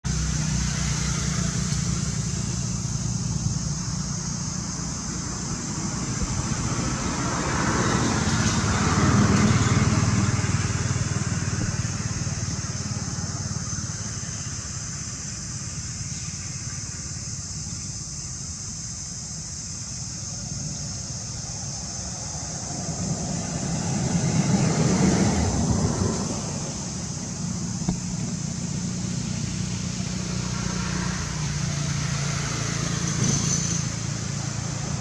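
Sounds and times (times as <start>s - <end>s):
vehicle passing: 0.0s - 14.2s, 21.5s - 35.0s
steady high hiss: 0.1s - 35.0s.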